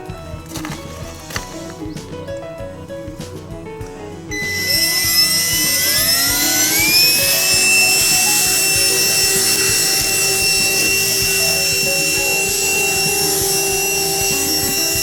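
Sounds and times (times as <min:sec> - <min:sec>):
handheld vacuum cleaner motor whine: 0:04.3 - 0:15.0.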